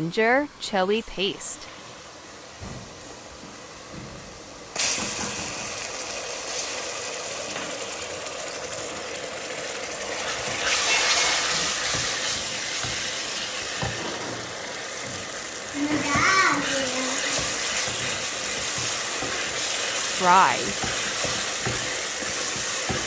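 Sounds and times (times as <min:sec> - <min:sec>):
paste sizzling in hot oil: 0:04.7 - 0:23.0.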